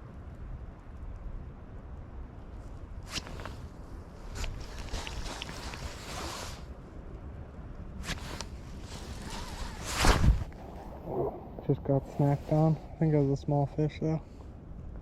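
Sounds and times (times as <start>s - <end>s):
wind rumble on microphone: 0.0s - 15.0s
brief rustle: 3.0s - 6.7s, 8.0s - 10.8s.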